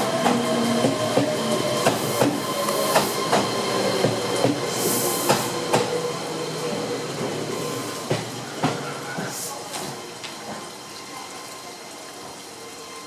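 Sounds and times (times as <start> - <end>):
train wheels clacking over rail joints: 0.0 - 6.0.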